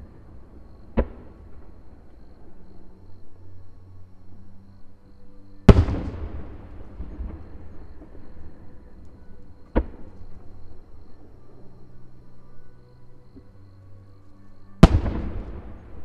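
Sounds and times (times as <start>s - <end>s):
sharp firework bang: 5.7s - 6.5s
fireworks boom echoing: 5.7s - 7.4s, 14.8s - 16.0s.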